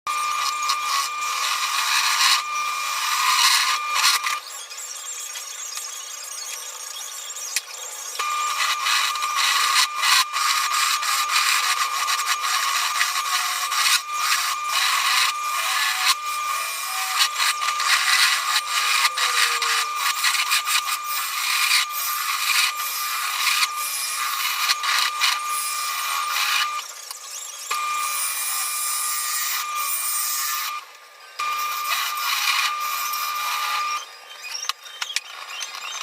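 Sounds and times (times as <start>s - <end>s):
lathe tool scraping wood: 0.1s - 4.4s, 8.2s - 26.8s, 31.5s - 34.0s
lathe whine: 0.1s - 4.9s, 7.6s - 34.3s.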